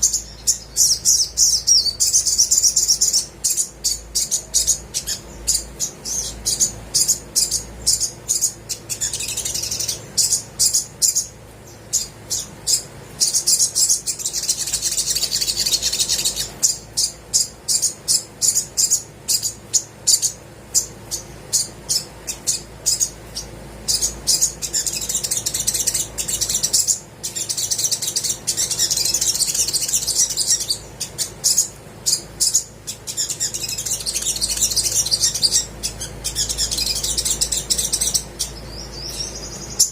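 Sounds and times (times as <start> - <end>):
sunbird chirping and trilling: 0.0 - 39.9.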